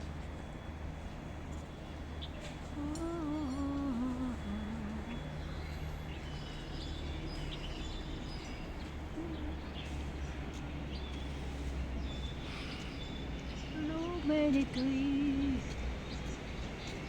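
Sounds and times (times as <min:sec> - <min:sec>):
person humming: 0:02.8 - 0:05.2, 0:09.2 - 0:09.6
small birds chirping: 0:02.9 - 0:17.0.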